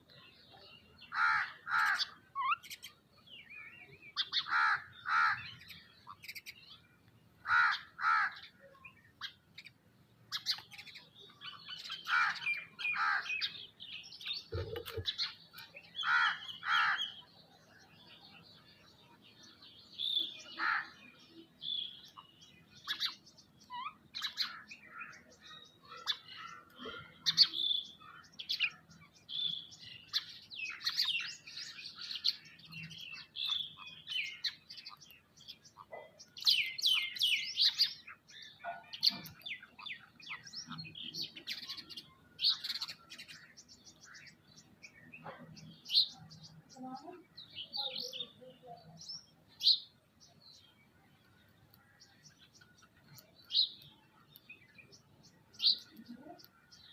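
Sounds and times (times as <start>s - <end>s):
birds calling harshly: 0.0s - 56.9s
high-pitched bird chirping: 1.8s - 6.8s, 7.8s - 18.4s.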